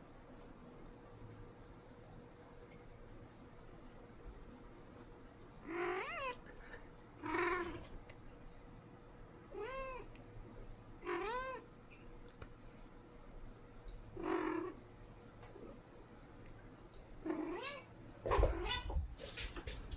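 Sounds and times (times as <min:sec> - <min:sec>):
cat meowing: 0:05.7 - 0:06.4, 0:07.2 - 0:07.9, 0:09.5 - 0:10.1, 0:11.0 - 0:11.6, 0:17.3 - 0:19.0.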